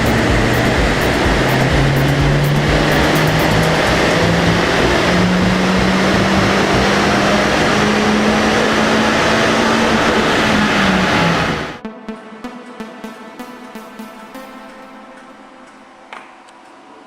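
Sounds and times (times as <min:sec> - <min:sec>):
car engine revving under load: 0:00.0 - 0:11.8.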